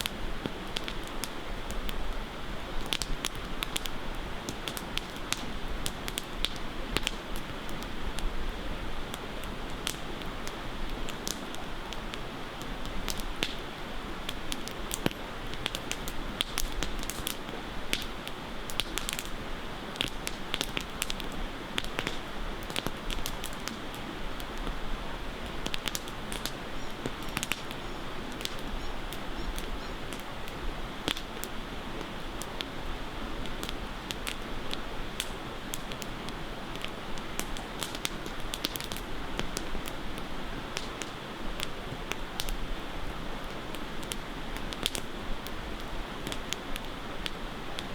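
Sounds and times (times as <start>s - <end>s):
campfire crackling: 0.0s - 47.9s
steady hiss: 0.0s - 47.9s.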